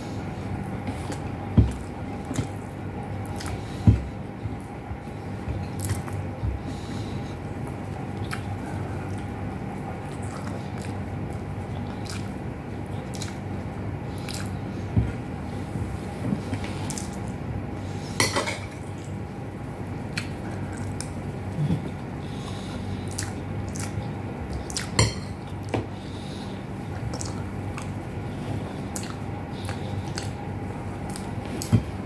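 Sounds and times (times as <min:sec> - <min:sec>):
steady low hum: 0:00.0 - 0:32.0
chewing and wet mouth smacking: 0:00.9 - 0:03.7, 0:05.6 - 0:06.2, 0:07.6 - 0:09.4, 0:10.0 - 0:14.6, 0:20.1 - 0:21.2, 0:22.5 - 0:25.7, 0:27.0 - 0:28.0, 0:28.8 - 0:30.4, 0:31.0 - 0:31.8.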